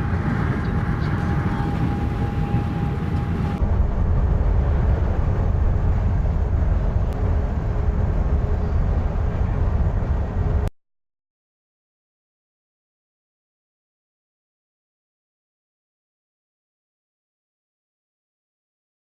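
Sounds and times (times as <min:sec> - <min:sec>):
car road and engine rumble: 0:00.0 - 0:10.7.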